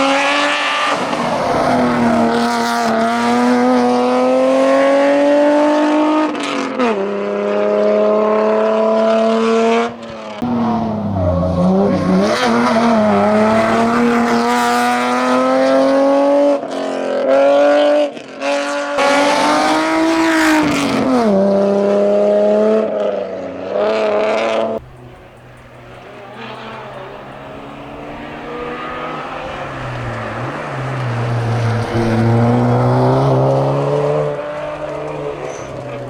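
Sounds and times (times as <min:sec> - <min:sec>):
race car engine accelerating: 0:00.0 - 0:17.9, 0:18.5 - 0:36.0.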